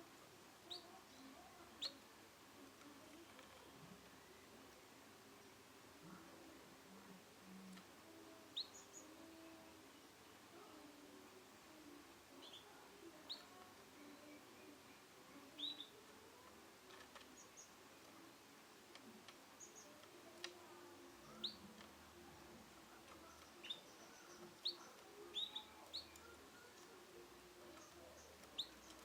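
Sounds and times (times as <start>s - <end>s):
canary chirping: 0.6s - 2.1s, 7.6s - 10.2s, 12.3s - 29.0s.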